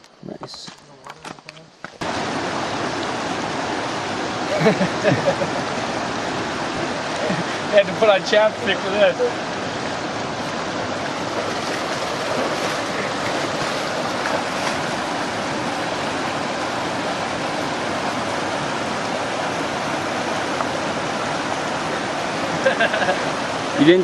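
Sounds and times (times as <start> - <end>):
rushing water: 2.0 - 24.0.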